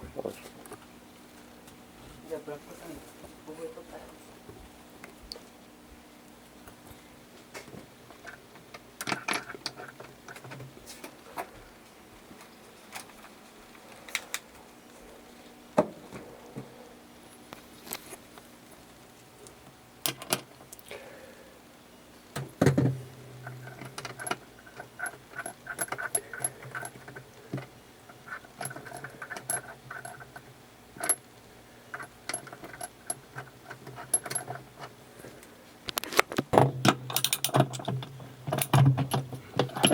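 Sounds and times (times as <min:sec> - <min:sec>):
metal parts and tools clinking: 0:23.4 - 0:31.2, 0:31.9 - 0:34.9, 0:36.0 - 0:39.9.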